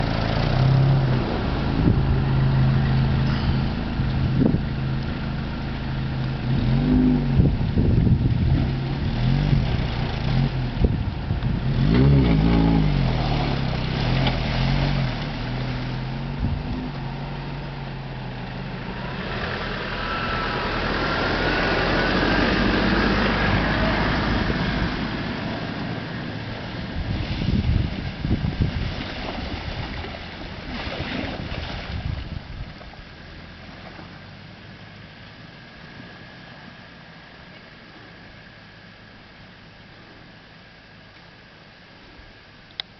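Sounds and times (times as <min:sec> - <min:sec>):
car engine revving: 0:00.0 - 0:27.3.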